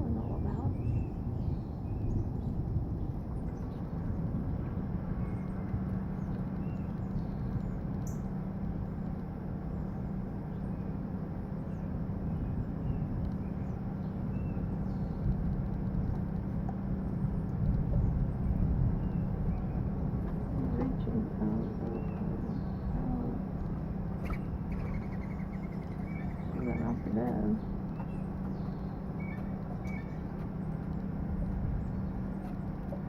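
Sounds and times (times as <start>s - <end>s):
low outdoor rumble: 0.0s - 33.0s
faint bird chirps: 18.0s - 30.9s.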